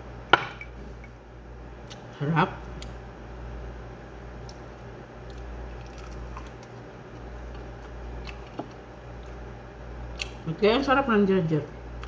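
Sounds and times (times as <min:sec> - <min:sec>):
steady low hum: 0:00.0 - 0:12.0
person chewing food: 0:04.4 - 0:09.4.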